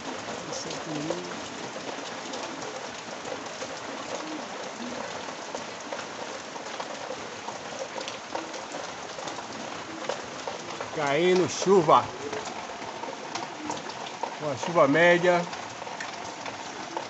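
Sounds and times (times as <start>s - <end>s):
rain falling: 0.0s - 17.0s
raindrops pattering: 0.0s - 17.0s.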